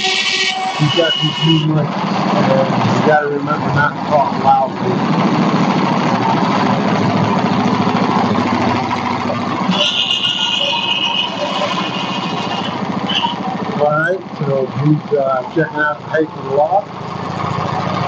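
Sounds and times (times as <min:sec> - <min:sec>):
high-pitched whine: 0:00.0 - 0:05.0
gasoline engine idling: 0:00.0 - 0:18.0.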